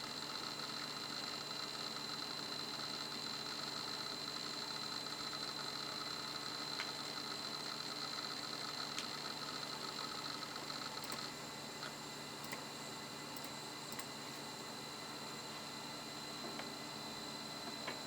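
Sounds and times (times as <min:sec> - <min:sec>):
hard drive whine: 0:00.0 - 0:18.0
hard drive light ticks: 0:10.9 - 0:11.3, 0:12.4 - 0:12.7, 0:13.4 - 0:14.1.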